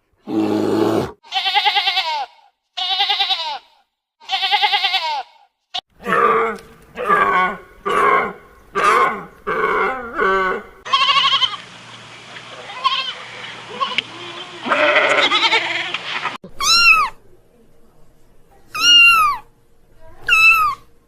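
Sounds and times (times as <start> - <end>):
quavering bleats: 0.3 - 11.7, 12.6 - 16.0.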